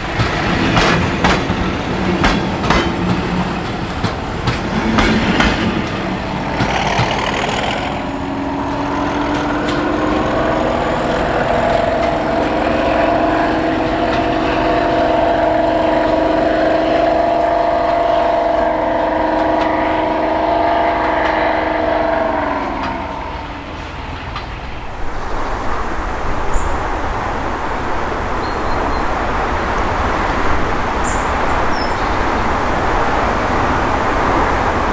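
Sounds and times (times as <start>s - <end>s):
wheels on rails: 0.0s - 16.2s
diesel locomotive engine droning: 0.0s - 34.9s.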